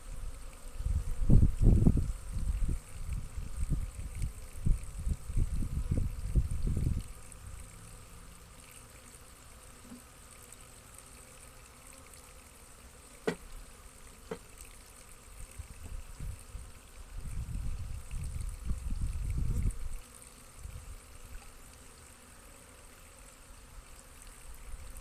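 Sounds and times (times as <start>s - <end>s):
bees buzzing: 0.0s - 25.0s
low wind rumble on microphone: 0.8s - 7.6s, 15.6s - 20.0s.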